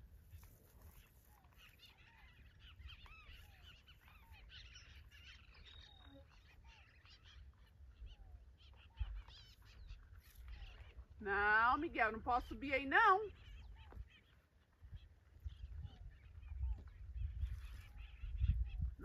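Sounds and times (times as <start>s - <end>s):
faint bird chirps: 0.2s - 19.0s
low wind rumble: 14.8s - 19.0s.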